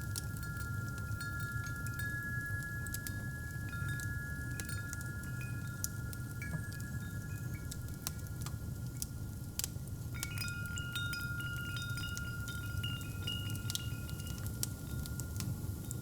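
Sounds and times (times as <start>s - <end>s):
wind chimes ringing: 0.4s - 7.9s, 10.2s - 15.9s
fireplace crackling: 9.6s - 16.0s.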